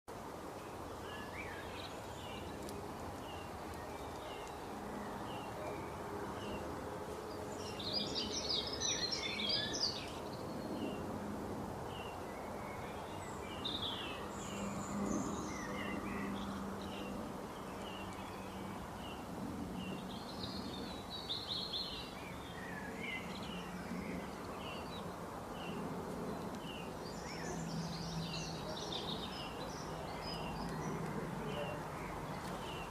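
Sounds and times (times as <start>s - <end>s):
birds chirping and twittering: 0.2s - 32.9s.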